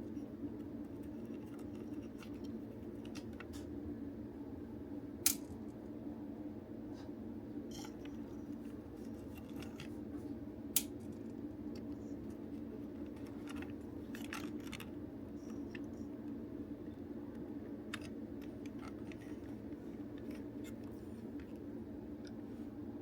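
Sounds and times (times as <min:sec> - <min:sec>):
steady low hum: 0:00.0 - 0:23.0
plastic toy parts clicking: 0:05.3 - 0:05.5, 0:13.0 - 0:15.0.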